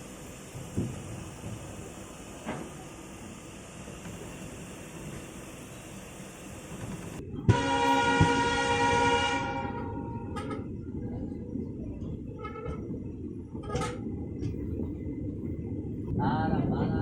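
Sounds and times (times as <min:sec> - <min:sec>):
train rumbling: 0:00.0 - 0:17.0
train horn blast: 0:07.4 - 0:10.7.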